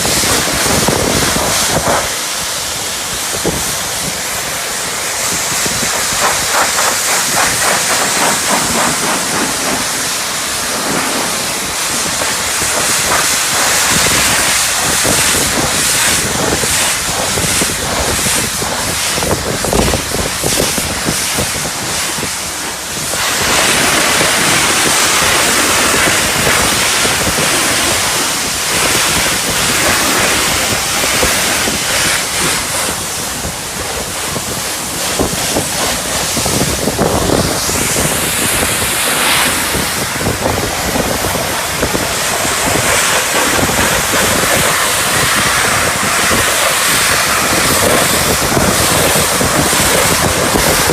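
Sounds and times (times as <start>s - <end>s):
pressure washer spraying water: 0.0s - 50.9s.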